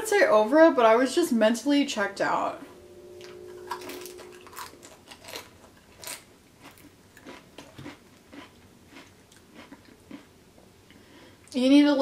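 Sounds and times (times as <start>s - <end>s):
chip crunching: 5.1s - 10.3s.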